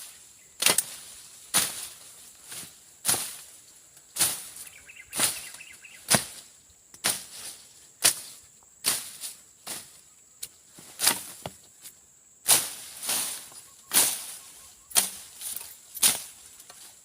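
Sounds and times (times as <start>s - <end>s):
insects humming: 0.0s - 17.0s
machete slashing through grass: 0.6s - 3.6s, 4.2s - 4.6s, 6.0s - 9.9s, 10.9s - 11.5s, 12.5s - 16.8s.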